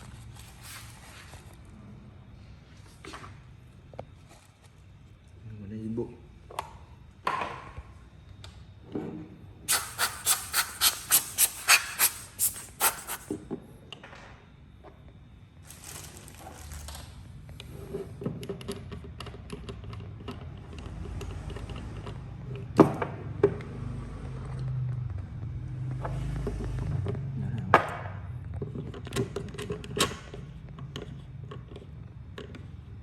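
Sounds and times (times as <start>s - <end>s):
sharp hissing puffs: 9.7s - 13.4s.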